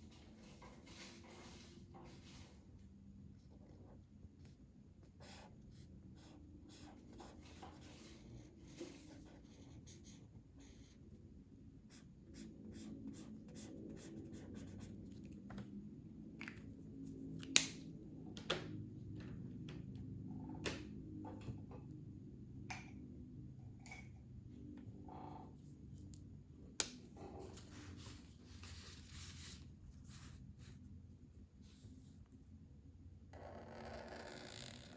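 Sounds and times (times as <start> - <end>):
pencil scratching on paper: 5.2 - 11.0, 11.9 - 15.1.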